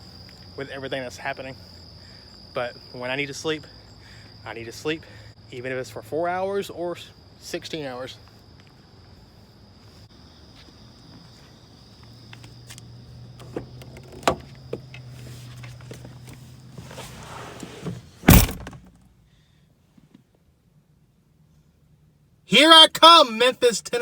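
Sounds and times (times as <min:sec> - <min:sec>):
insect chirring: 0:00.0 - 0:05.7
car door shutting: 0:13.3 - 0:19.0.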